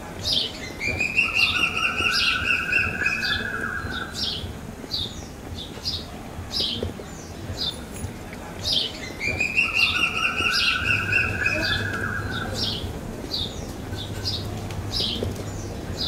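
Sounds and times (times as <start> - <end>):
birds chirping: 0.0 - 16.0
bird trilling: 0.8 - 4.4, 9.1 - 15.2.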